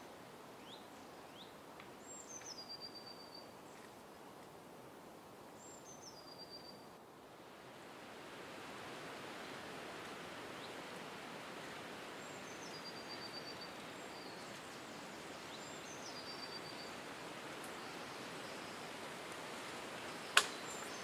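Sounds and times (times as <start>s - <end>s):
songbird calls: 0.6s - 3.9s, 5.6s - 6.9s, 12.2s - 17.0s, 20.1s - 21.0s
outdoor hiss: 7.0s - 21.0s.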